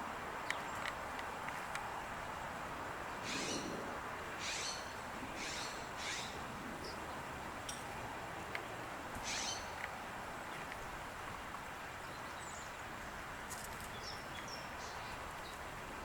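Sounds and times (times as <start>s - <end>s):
songbird chirps: 0.4s - 3.8s, 4.4s - 16.0s.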